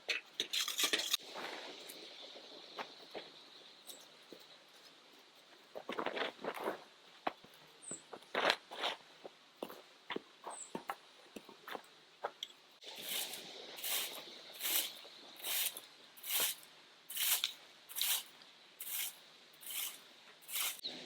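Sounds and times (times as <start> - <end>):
camping gear clicks and rustles: 2.7 - 9.8.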